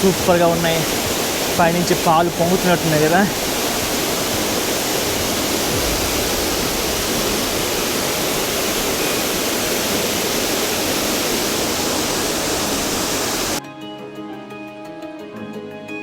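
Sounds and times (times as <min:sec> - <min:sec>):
waterfall rushing: 0:00.0 - 0:13.6
music: 0:13.6 - 0:16.0.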